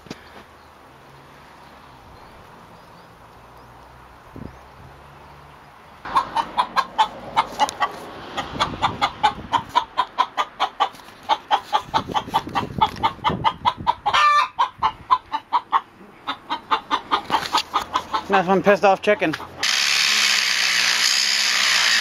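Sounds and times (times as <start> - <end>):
hen squawk: 6.1 - 18.3
hen clucking agitatedly: 6.1 - 19.6.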